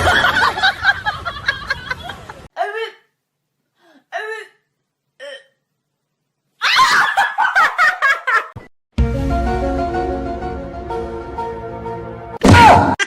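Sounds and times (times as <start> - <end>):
music: 9.0 - 12.4.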